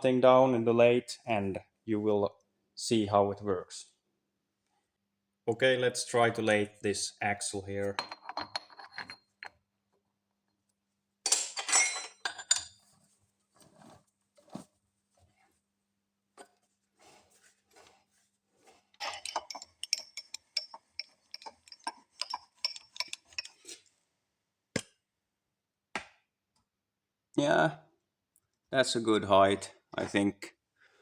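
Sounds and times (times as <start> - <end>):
metal clinking and rattling: 8.0 - 9.5, 11.3 - 12.9, 19.0 - 23.8.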